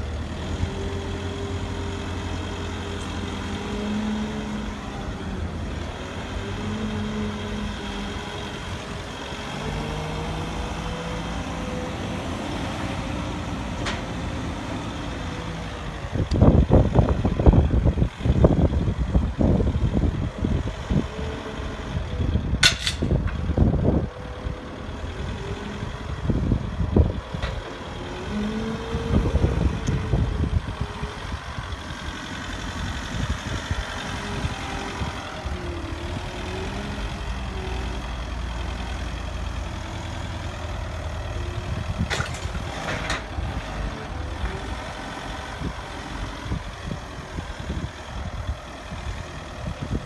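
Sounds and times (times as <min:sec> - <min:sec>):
truck engine idling: 0:00.0 - 0:50.0.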